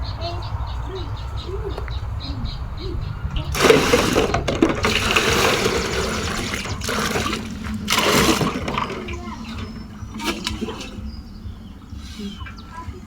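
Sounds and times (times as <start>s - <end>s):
dishes being washed: 3.0s - 13.0s
water pouring and splashing: 3.4s - 13.0s.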